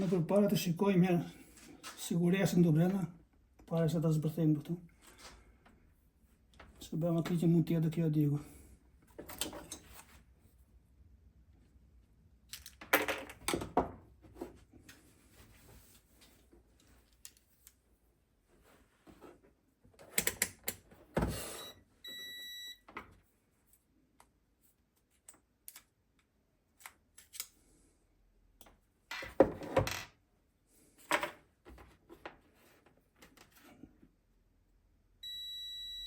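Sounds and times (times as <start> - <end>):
short electronic beep: 21.6 - 22.8, 35.2 - 36.0.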